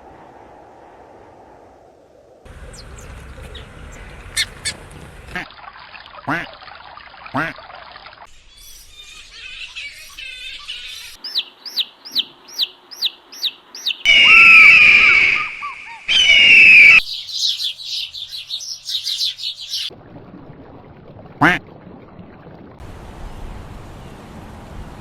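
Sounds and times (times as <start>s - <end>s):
bird chattering: 2.6s - 5.4s, 9.1s - 14.0s, 17.2s - 19.9s
bird screeching cries: 8.6s - 19.9s
bird whistling falling notes: 13.4s - 19.9s.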